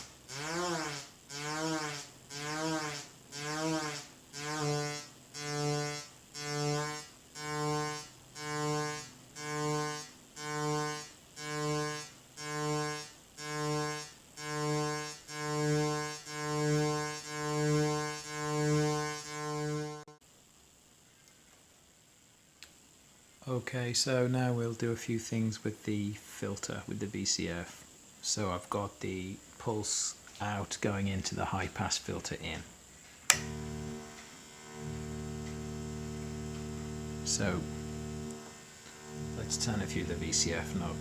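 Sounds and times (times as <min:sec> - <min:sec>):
synthesizer oscillator pulsing: 0:34.7 - 0:41.0.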